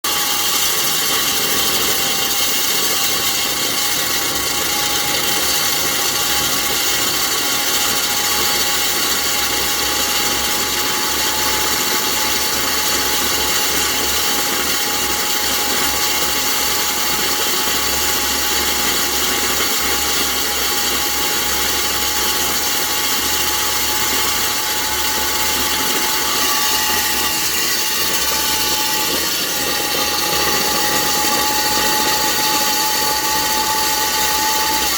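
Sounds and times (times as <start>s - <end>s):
electric core drill grinding: 0.0s - 34.9s.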